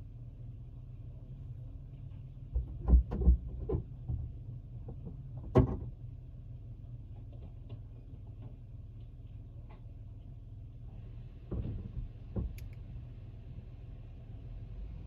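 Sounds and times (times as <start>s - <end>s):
car engine hum inside cabin: 0.0s - 15.0s
knocks and thumps: 2.5s - 5.9s.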